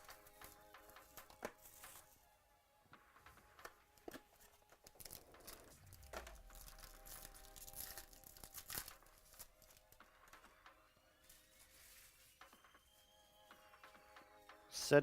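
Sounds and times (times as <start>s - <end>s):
wrapper torn and crinkled: 4.8s - 10.0s.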